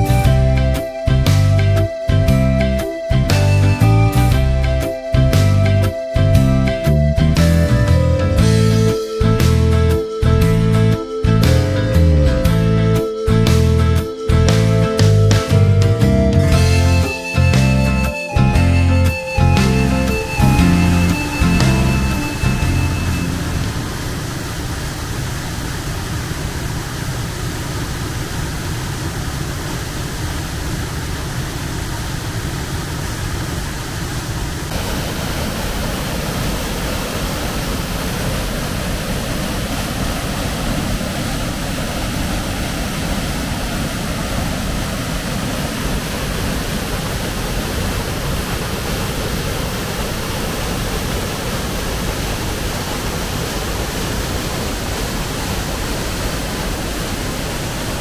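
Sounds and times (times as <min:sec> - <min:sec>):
waterfall roaring: 0:16.6 - 0:58.0.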